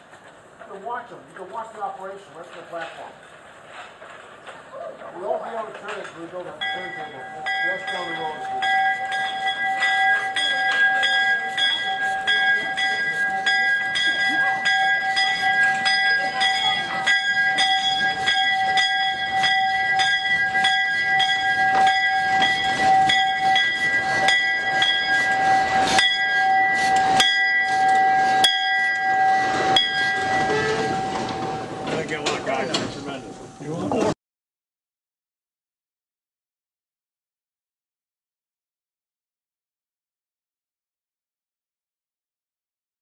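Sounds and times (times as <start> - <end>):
locomotive bell ringing: 5.2 - 33.9.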